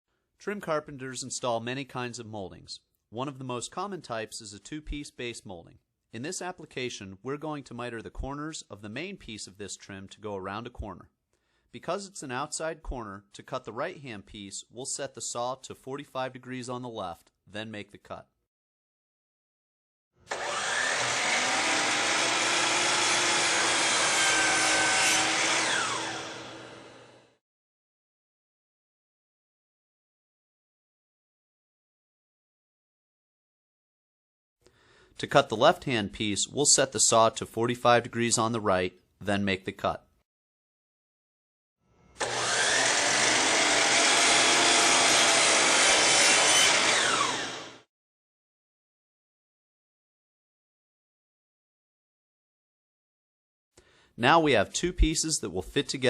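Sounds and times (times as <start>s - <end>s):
miter saw cutting: 20.3s - 27.4s, 42.2s - 47.9s.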